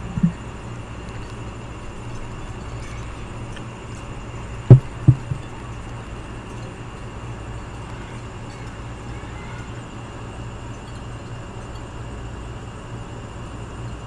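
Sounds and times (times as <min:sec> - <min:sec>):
dull thumps: 0:00.0 - 0:00.4, 0:04.7 - 0:05.6.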